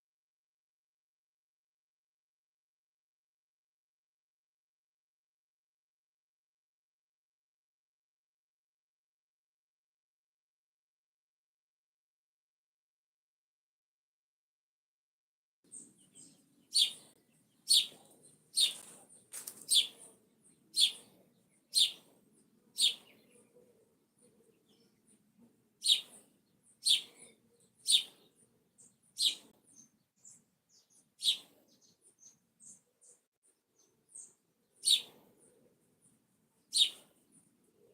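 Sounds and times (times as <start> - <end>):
bird chirping loudly: 15.7 - 18.9, 19.6 - 20.1, 20.7 - 21.1, 21.7 - 22.1, 22.8 - 23.2, 25.8 - 26.2, 26.8 - 29.9, 30.7 - 31.5, 34.2 - 35.1, 36.7 - 37.1
faint high chirps: 36.6 - 37.9.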